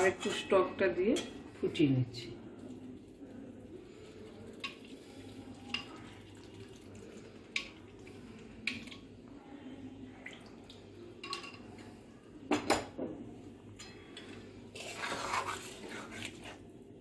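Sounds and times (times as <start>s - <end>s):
curry bubbling in a pot: 2.1s - 9.3s, 14.6s - 17.0s.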